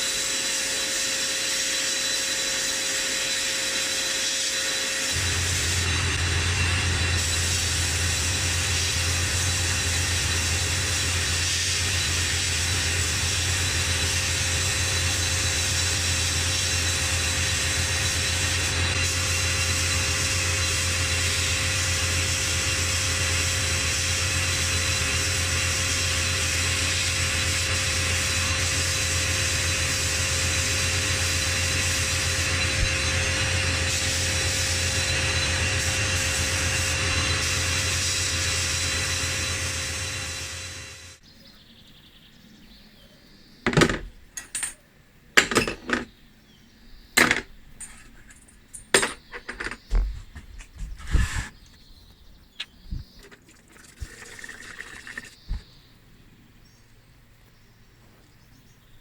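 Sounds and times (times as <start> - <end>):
machine humming and hissing: 0.0 - 41.2.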